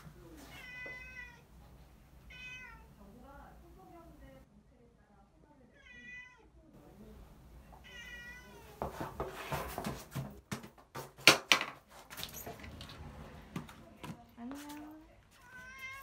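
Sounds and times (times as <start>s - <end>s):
cat meowing: 0.5s - 1.5s, 2.3s - 2.9s, 5.8s - 6.5s, 7.8s - 8.8s, 15.4s - 16.0s
sharp knocks and rattles: 8.9s - 13.0s.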